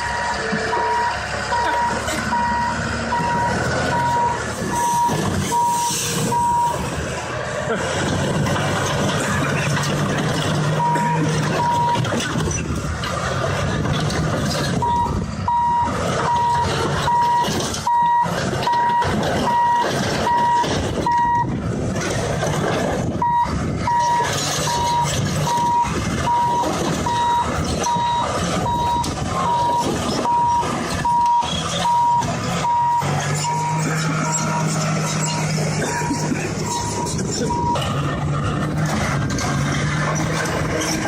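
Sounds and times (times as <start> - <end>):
reversing alarm beeping: 0.0 - 7.0, 10.8 - 12.1, 14.8 - 21.6, 23.2 - 38.1
heavy machine engine noise: 0.0 - 41.0.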